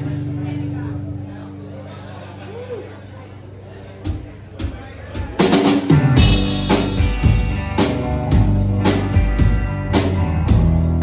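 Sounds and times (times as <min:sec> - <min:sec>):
bass guitar: 0:00.0 - 0:02.8, 0:04.1 - 0:11.0
drums: 0:04.0 - 0:11.0
strummed guitar: 0:05.2 - 0:11.0.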